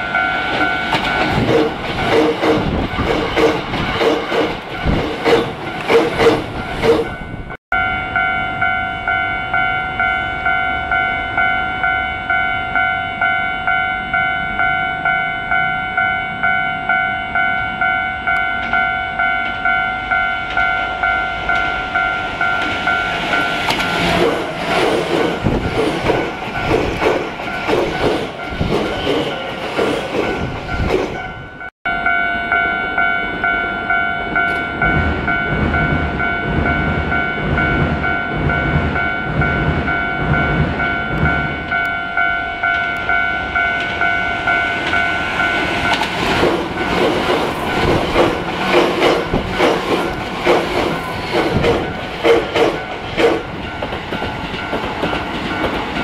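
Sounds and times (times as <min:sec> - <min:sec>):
train wheels clacking on rails: 0:00.0 - 0:07.2, 0:21.5 - 0:31.3, 0:42.6 - 0:56.0
level crossing warning bell: 0:00.0 - 0:56.0.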